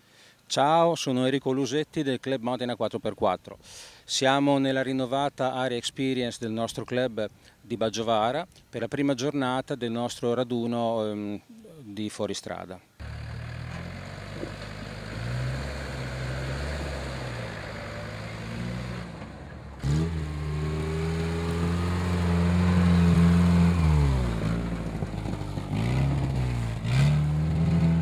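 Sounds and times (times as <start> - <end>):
off-road engines under load: 12.9 - 28.0.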